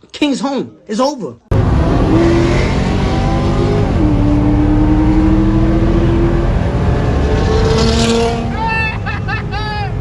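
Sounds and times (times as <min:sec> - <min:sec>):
car engine running: 0:01.5 - 0:09.2
road and exhaust noise: 0:01.5 - 0:10.0.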